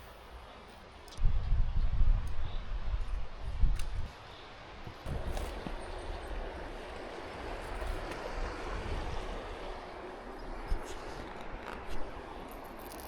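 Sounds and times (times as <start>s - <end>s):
wind rumble on microphone: 0.3s - 13.0s
wind rushing through trees: 1.2s - 12.5s.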